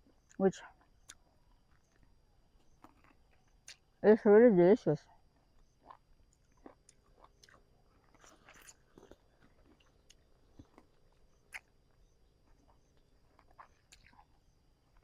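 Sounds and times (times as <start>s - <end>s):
faint short clicks and crunches: 2.8s - 3.8s.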